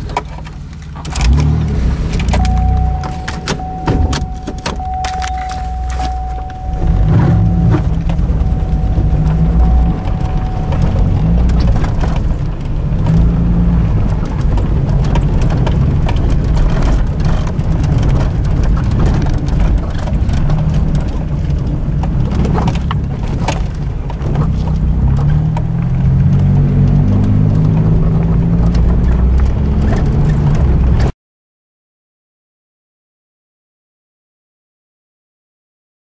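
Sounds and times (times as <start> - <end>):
minivan engine running: 0.0 - 31.1
clicks and knocks: 0.1 - 13.4
heavy low rumbling: 1.2 - 23.2.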